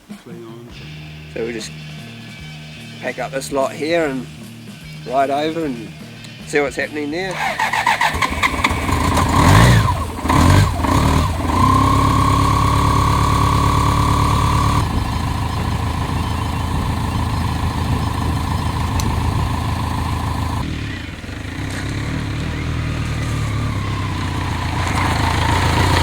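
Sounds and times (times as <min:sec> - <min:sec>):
motorcycle engine revving and idling: 0:07.3 - 0:26.0.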